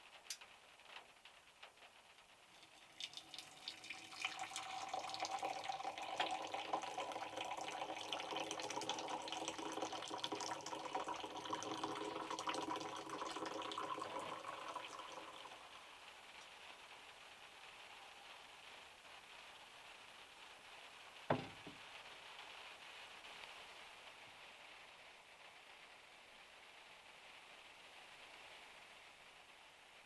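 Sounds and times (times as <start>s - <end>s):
water running from a tap: 2.5s - 15.9s, 21.3s - 21.8s.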